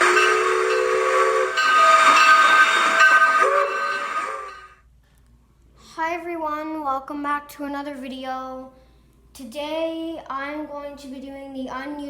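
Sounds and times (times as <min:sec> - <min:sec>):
hissing steam: 0:00.0 - 0:04.7
steam locomotive whistle: 0:00.0 - 0:04.7.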